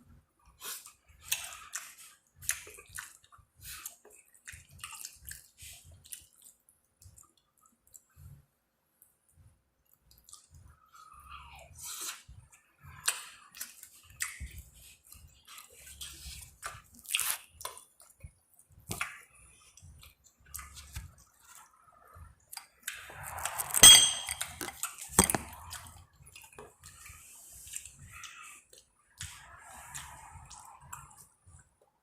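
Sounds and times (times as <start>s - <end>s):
chewing and wet mouth sounds: 0.1s - 32.0s
utensil scrape with ringing clink: 23.8s - 25.3s.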